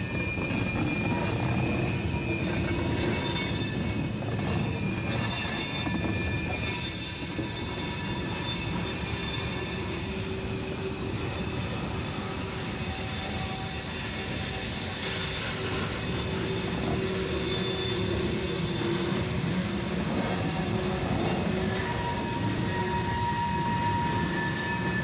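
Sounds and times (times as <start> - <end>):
high-pitched wheel squeal: 0.0 - 25.0
train wheels rolling on rails: 0.0 - 25.0.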